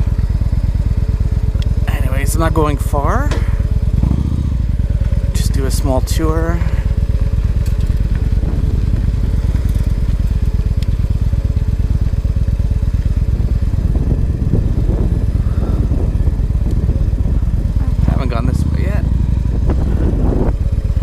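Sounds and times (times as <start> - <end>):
motorcycle engine pulsing: 0.0 - 21.0.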